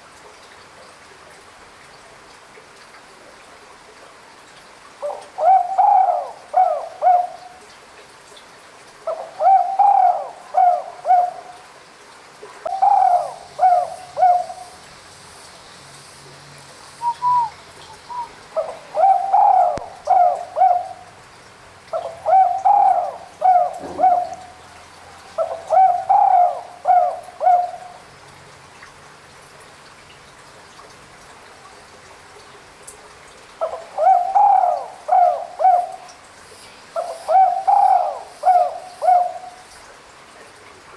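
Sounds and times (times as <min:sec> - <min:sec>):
dove cooing: 0:05.0 - 0:07.5, 0:09.1 - 0:11.6, 0:12.7 - 0:14.8, 0:17.0 - 0:21.0, 0:22.0 - 0:28.0, 0:33.6 - 0:36.1, 0:37.0 - 0:39.6.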